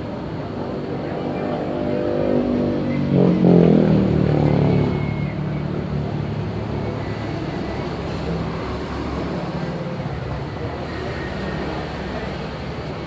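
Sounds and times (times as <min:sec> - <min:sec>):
engine running and revving: 0:01.0 - 0:09.8.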